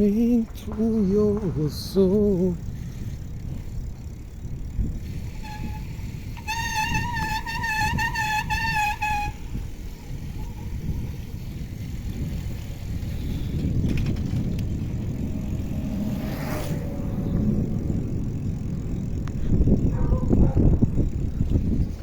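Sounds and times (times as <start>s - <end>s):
wind and road rumble: 0.0s - 22.0s
vehicle passing whoosh: 10.9s - 21.0s.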